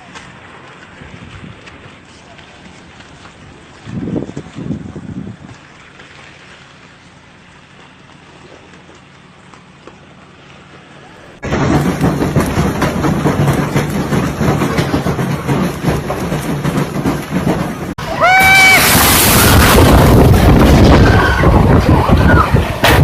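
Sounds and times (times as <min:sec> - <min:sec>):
storm rushing noise: 0:11.4 - 0:23.0
short high cry: 0:18.0 - 0:19.7.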